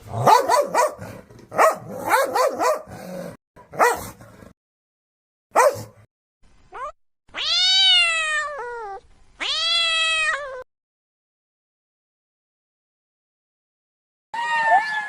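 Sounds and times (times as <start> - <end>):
cat meowing: 6.7 - 10.7.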